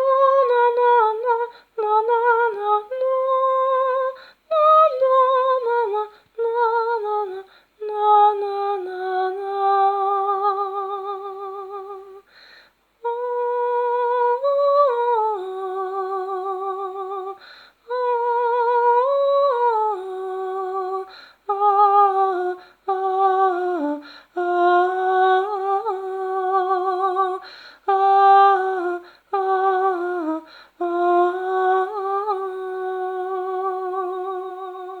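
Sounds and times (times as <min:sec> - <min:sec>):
person humming a melody: 0:00.0 - 0:12.3, 0:13.0 - 0:35.0
person breathing: 0:04.2 - 0:04.5, 0:12.2 - 0:12.8, 0:17.4 - 0:17.8, 0:21.1 - 0:21.5, 0:24.0 - 0:24.4, 0:27.4 - 0:27.9, 0:30.4 - 0:30.8.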